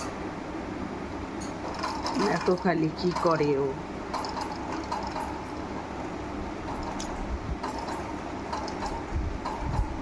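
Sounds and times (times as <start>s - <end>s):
room hum: 0.0s - 10.0s.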